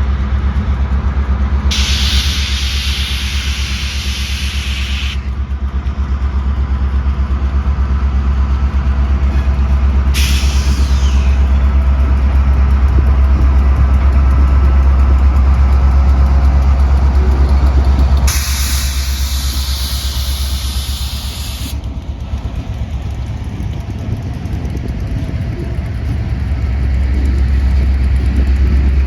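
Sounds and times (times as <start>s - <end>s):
diesel locomotive engine rumbling: 0.0s - 29.0s
hiss bursts: 1.7s - 5.3s, 10.2s - 11.6s, 18.3s - 21.8s.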